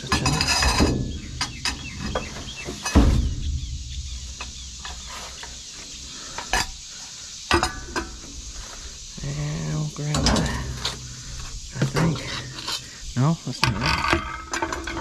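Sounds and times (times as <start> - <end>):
scrap metal clinking and knocking: 0.0 - 6.8, 7.5 - 8.4, 10.0 - 13.0, 13.6 - 15.0
heavy thump: 0.6 - 5.2.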